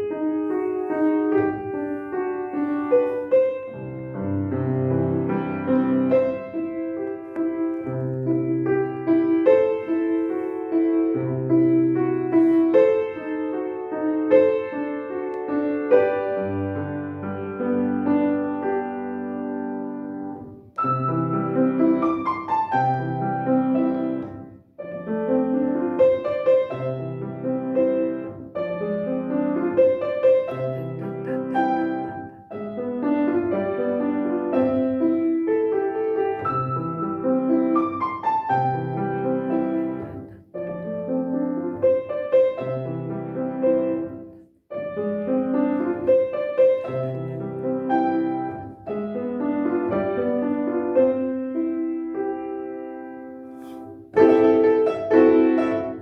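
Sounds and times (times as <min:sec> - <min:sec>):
solo piano piece: 0:00.0 - 0:56.0.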